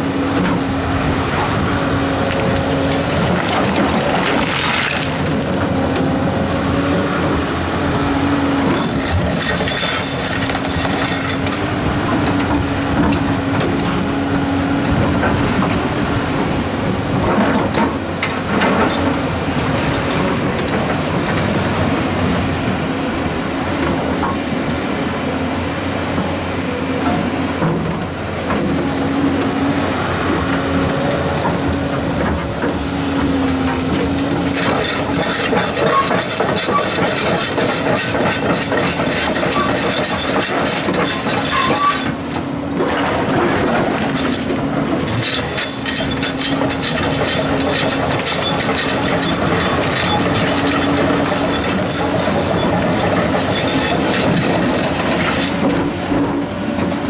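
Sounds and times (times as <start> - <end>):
excavator engine humming: 0.0 - 57.0.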